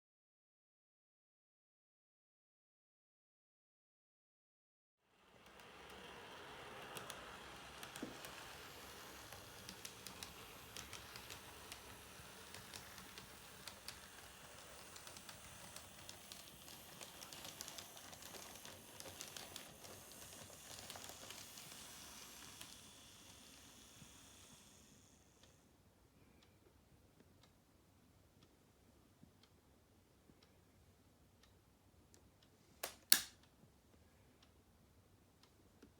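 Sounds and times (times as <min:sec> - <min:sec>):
model train motor hiss: 0:05.1 - 0:25.6.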